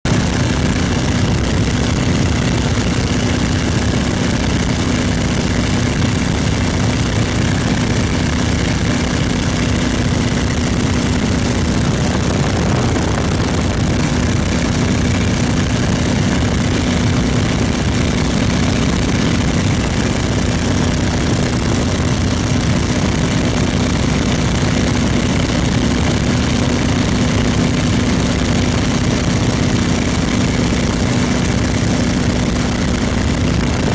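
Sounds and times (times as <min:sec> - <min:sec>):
biplane engine droning: 0:00.1 - 0:33.9
rush of air: 0:09.0 - 0:20.7.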